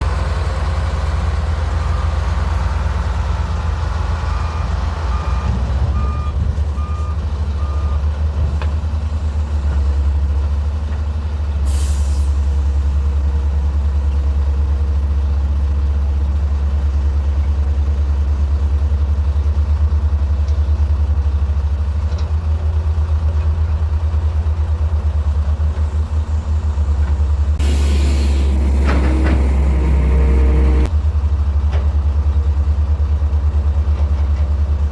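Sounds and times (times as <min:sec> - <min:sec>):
reversing alarm beeping: 0:04.3 - 0:08.1, 0:27.6 - 0:30.9
hiss of air: 0:11.7 - 0:12.5, 0:27.6 - 0:30.9
air brake hiss: 0:11.7 - 0:12.9, 0:27.6 - 0:30.9
diesel engines throbbing: 0:24.4 - 0:30.9.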